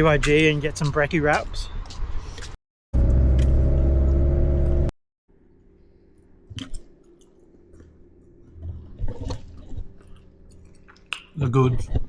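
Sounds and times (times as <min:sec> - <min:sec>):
car engine and road noise: 0:00.0 - 0:05.0.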